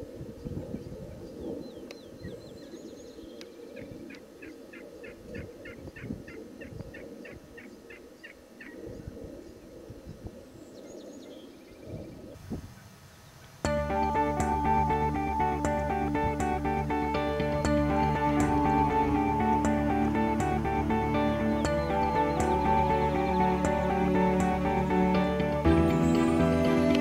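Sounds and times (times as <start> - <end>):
birds calling: 10.6 - 27.0.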